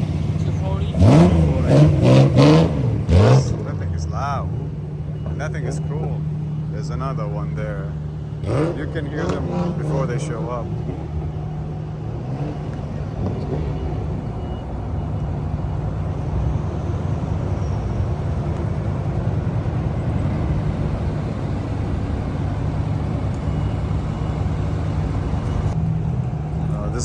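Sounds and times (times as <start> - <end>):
car engine idling: 0.0 - 8.6, 16.6 - 25.8.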